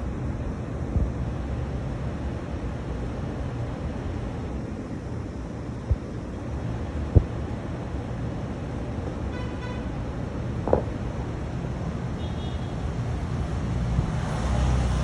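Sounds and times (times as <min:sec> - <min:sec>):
road traffic rumble: 0:00.0 - 0:15.0
soft knock: 0:10.7 - 0:10.9.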